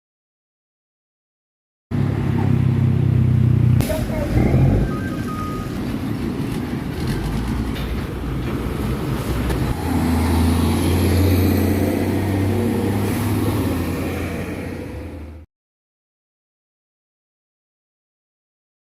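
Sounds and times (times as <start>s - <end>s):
truck diesel engine: 1.9s - 15.4s
road traffic: 1.9s - 15.5s.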